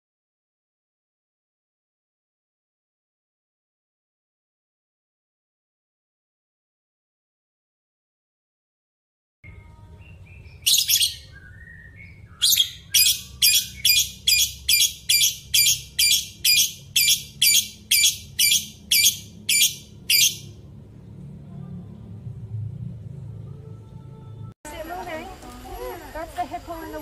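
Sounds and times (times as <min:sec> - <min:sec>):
bird giving harsh calls: 0:12.4 - 0:20.5
steady low rumble: 0:16.3 - 0:25.6.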